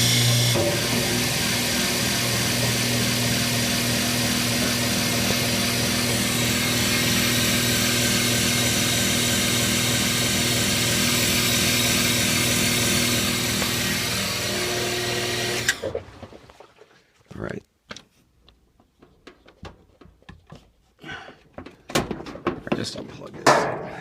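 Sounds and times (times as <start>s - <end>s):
washing machine motor humming: 0.0s - 16.4s.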